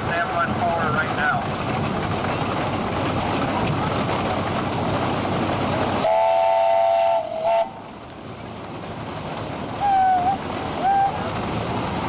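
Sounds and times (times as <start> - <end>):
steady rushing noise: 0.0 - 12.0
steam whistle blast: 6.0 - 7.8.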